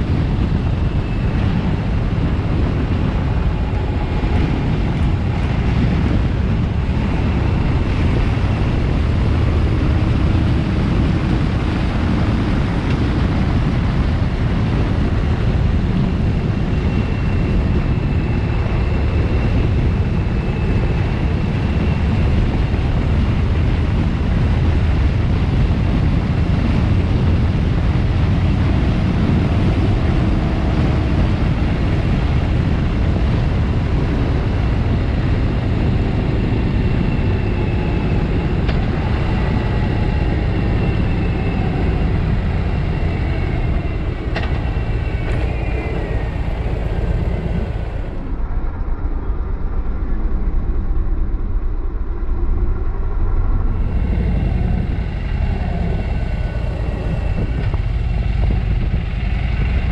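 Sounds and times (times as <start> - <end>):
rushing wind: 0.0 - 59.9
motorcycle engine running: 53.6 - 59.9.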